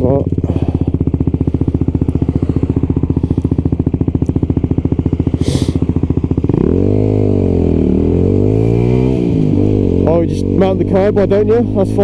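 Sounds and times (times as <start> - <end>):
motorcycle engine: 0.0 - 12.0.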